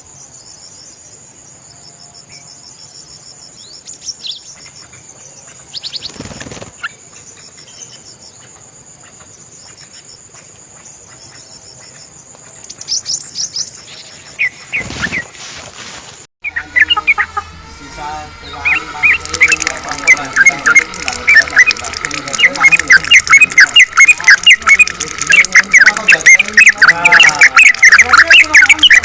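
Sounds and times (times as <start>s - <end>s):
birds chirping: 0.0s - 29.0s
high-pitched insect drone: 4.6s - 10.4s, 16.5s - 29.0s
brief rustling: 14.7s - 16.3s.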